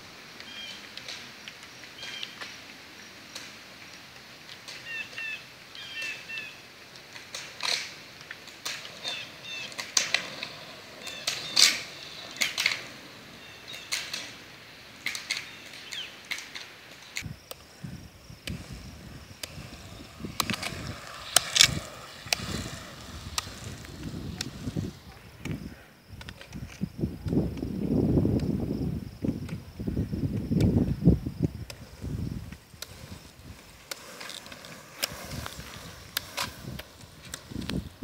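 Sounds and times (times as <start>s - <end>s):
small birds chirping: 4.8s - 6.6s, 9.0s - 9.9s, 10.9s - 14.2s, 15.2s - 16.3s
sharp clicks or scrapes: 19.4s - 25.6s, 31.7s - 37.8s.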